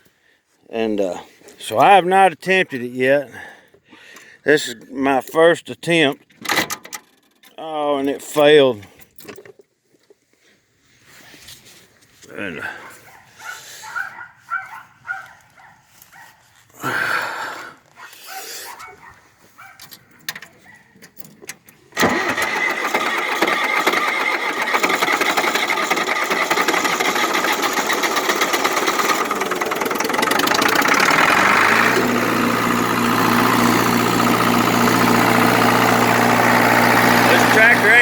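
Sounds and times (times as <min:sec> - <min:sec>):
starter motor cranking engine: 0:21.6 - 0:38.0
diesel engine idling: 0:22.0 - 0:38.0.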